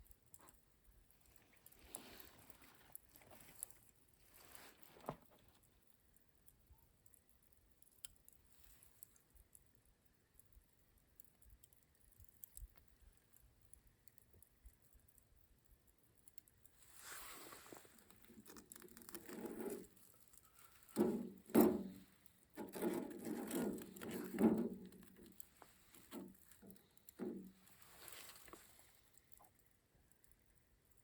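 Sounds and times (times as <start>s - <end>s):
handling scraping and rustling: 1.4s - 5.7s, 16.8s - 29.4s.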